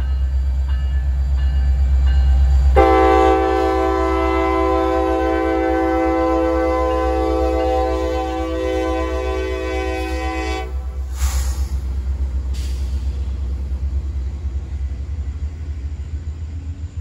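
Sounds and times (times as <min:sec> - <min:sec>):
train cars rumbling by: 0:00.0 - 0:17.0
locomotive air horn chord: 0:02.7 - 0:11.1
brief hiss: 0:11.0 - 0:13.4.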